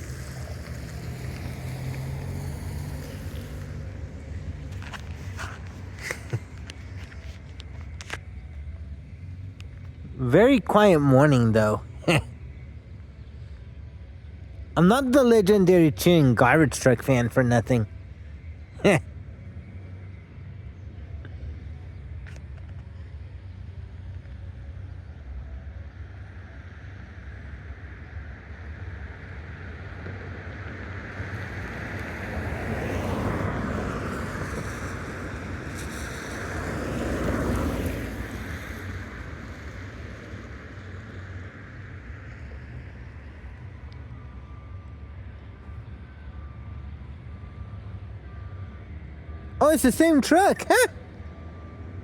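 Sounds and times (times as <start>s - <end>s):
vehicles passing on wet road: 0.0s - 8.2s, 29.8s - 43.6s, 49.6s - 50.9s
low traffic rumble: 0.0s - 19.9s.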